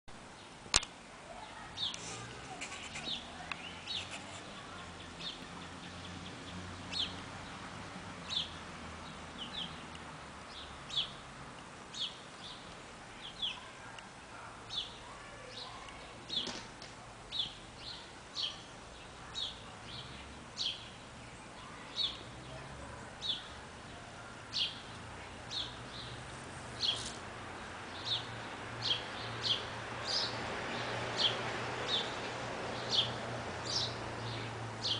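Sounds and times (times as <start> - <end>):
small bird chirping: 1.7 - 7.2.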